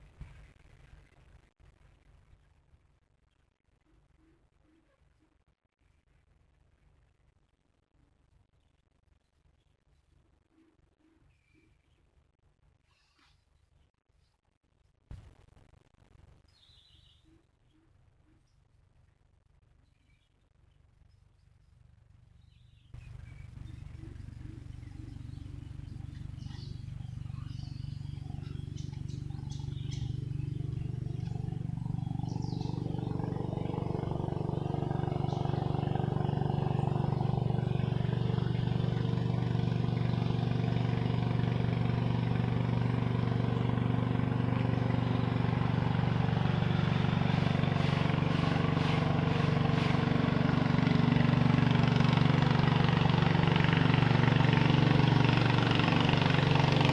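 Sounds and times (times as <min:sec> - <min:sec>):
small engine droning: 0:21.1 - 0:56.9.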